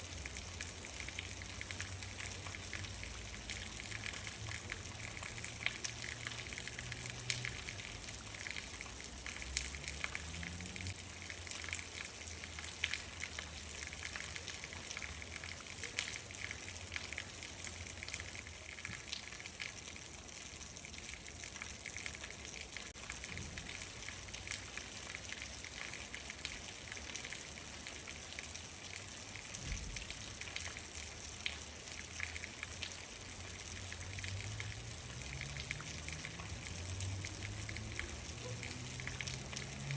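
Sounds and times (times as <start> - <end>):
rain falling: 0.0 - 39.9
raindrops ticking: 0.0 - 39.9.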